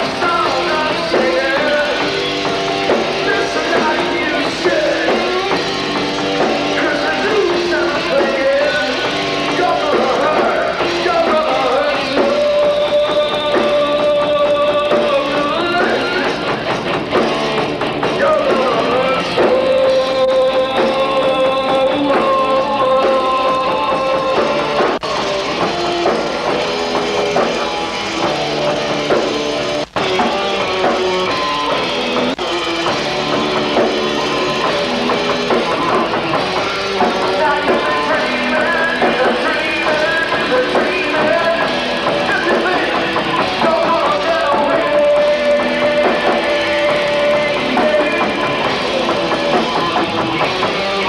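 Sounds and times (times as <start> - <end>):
drum kit: 0.0 - 51.0
electric guitar bending notes: 0.0 - 51.0.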